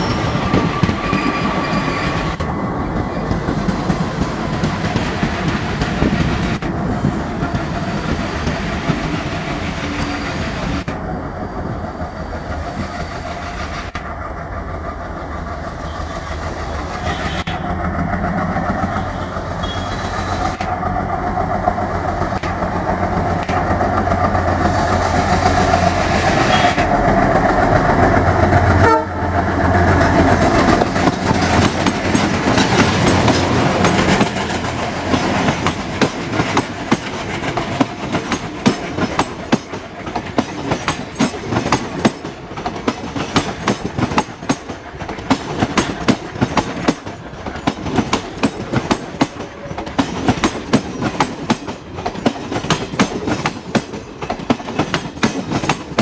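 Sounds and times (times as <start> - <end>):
diesel locomotive engine running: 0.0 - 56.0
wheels clickety-clack over rail joints: 0.0 - 56.0.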